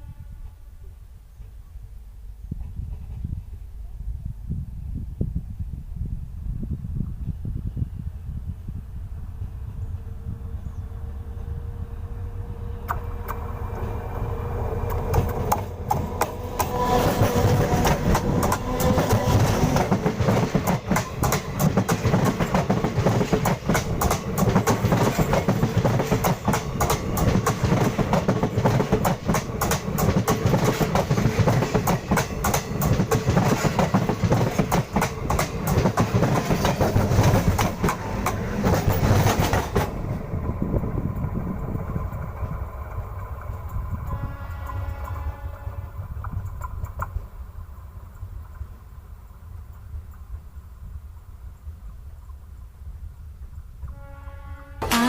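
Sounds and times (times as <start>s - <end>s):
train wheels clattering over rails: 12.8s - 45.2s.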